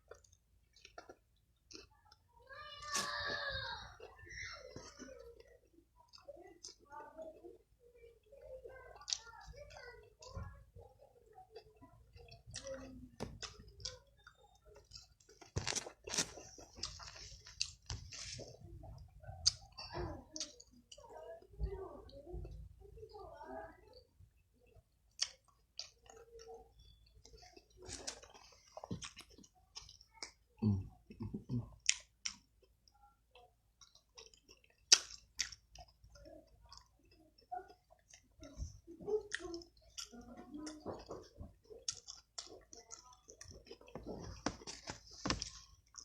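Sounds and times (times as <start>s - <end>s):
person chewing food: 0.0s - 2.3s, 3.8s - 7.8s, 8.8s - 10.3s, 11.3s - 21.2s, 24.3s - 46.0s
wet mouth clicks and smacks: 33.8s - 35.9s.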